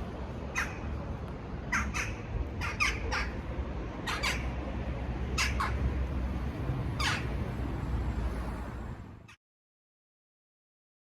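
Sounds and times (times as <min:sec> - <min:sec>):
steady low rumble: 0:00.0 - 0:09.2
harsh bird calls: 0:00.5 - 0:00.9, 0:01.7 - 0:03.4.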